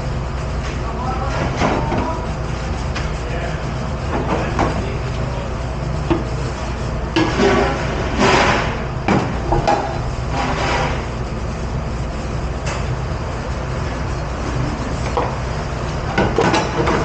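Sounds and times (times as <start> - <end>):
dishwashing machine drone: 0.0 - 17.0
dishes and racks clanking: 4.1 - 5.4, 7.1 - 11.2, 16.0 - 17.0.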